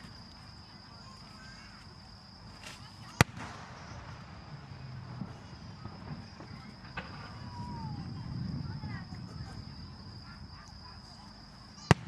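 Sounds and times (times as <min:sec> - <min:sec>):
firework bang: 0:02.6 - 0:11.0, 0:11.8 - 0:12.0.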